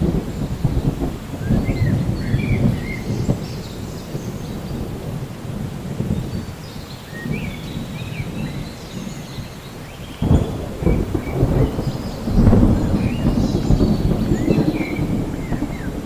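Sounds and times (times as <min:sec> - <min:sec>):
rolling thunder: 0:00.0 - 0:09.5, 0:10.1 - 0:16.0
steady rain: 0:00.0 - 0:16.0.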